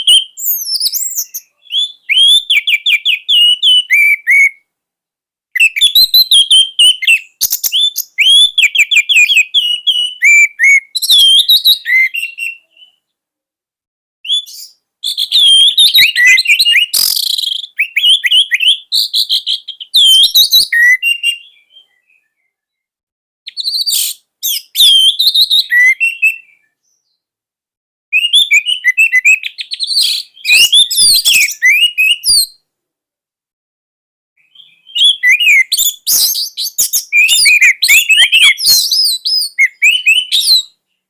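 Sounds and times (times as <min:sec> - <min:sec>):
thrush singing whistled song: 0:00.0 - 0:04.8, 0:05.5 - 0:13.2, 0:14.2 - 0:22.9, 0:23.5 - 0:27.3, 0:28.1 - 0:32.7, 0:34.4 - 0:41.0.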